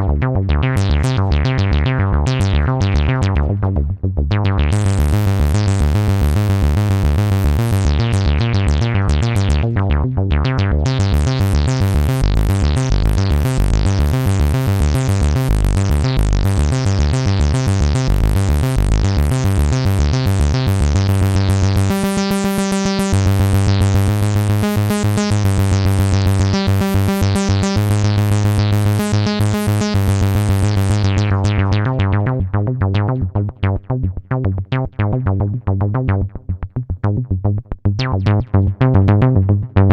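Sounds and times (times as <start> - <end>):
synth bass line: 0.0 - 39.9
synthesizer repeating short notes: 11.1 - 31.8.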